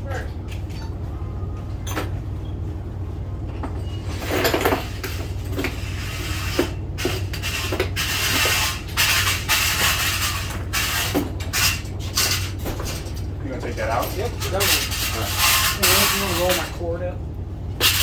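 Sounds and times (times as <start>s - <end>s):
low machine hum: 0.0s - 18.0s
scraping and rattling: 3.5s - 17.1s, 17.8s - 18.0s.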